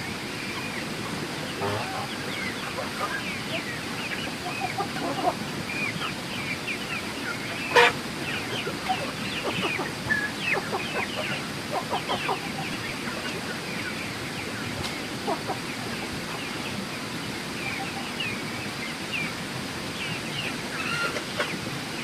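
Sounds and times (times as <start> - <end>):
ducks calling: 0.4 - 16.6, 20.7 - 21.6.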